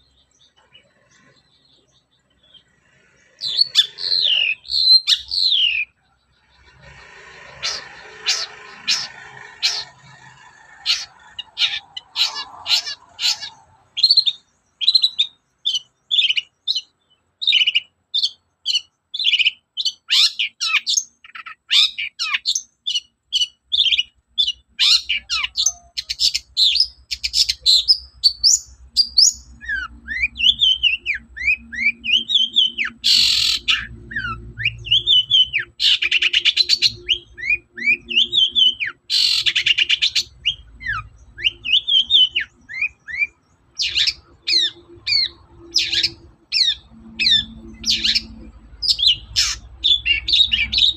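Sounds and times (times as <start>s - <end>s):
shrike singing: 3.3s - 16.9s.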